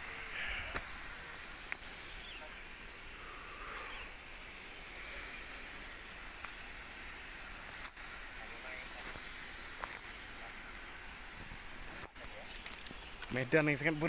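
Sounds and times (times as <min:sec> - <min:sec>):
sharp snaps: 0:00.0 - 0:02.1
steady outdoor hiss: 0:00.0 - 0:14.0.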